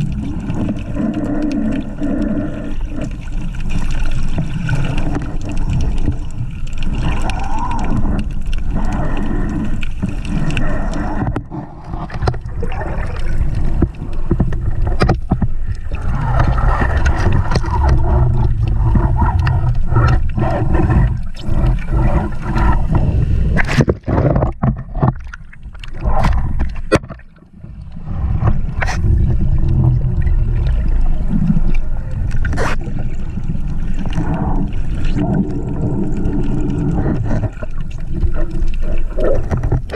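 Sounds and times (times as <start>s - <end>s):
water rushing and gurgling: 0.0s - 39.9s
low rumble: 26.0s - 37.5s.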